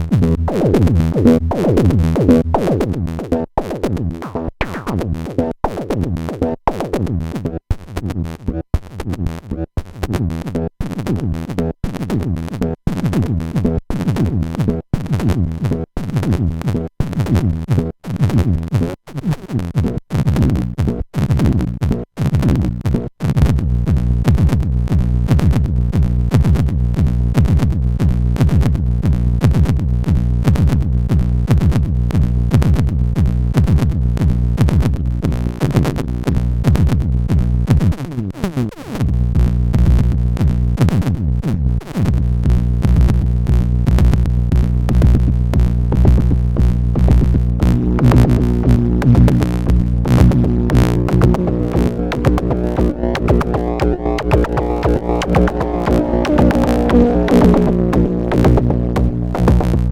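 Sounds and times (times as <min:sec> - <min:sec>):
synthesizer percussion hits: 0:00.1 - 0:05.9, 0:47.6 - 0:59.9.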